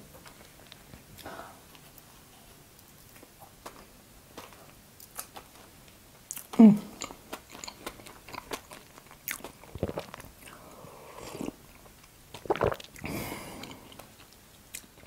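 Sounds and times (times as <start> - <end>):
close chewing: 6.3 - 10.6
wet mouth clicks: 12.4 - 13.0
sipping tea: 12.4 - 14.0.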